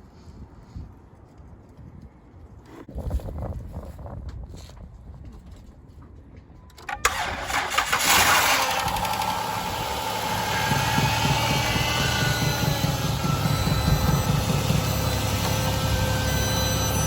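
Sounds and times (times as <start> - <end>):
engine cranking and idling: 6.8 - 17.0
steady whine: 7.1 - 17.0.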